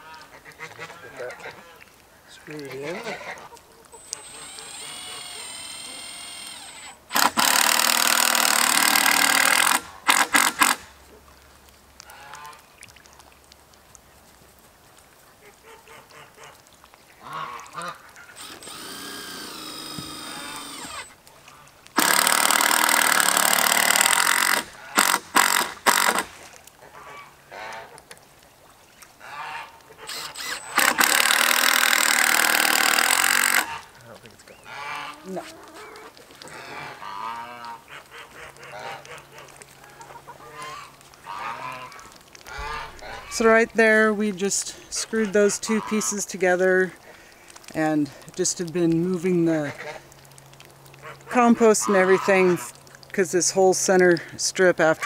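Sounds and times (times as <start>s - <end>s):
power drill driving screws into wood: 4.0s - 10.9s, 18.4s - 21.2s, 22.0s - 26.4s, 30.1s - 33.7s
geese honking: 17.2s - 18.4s, 29.2s - 31.0s, 33.4s - 43.6s, 45.0s - 46.3s.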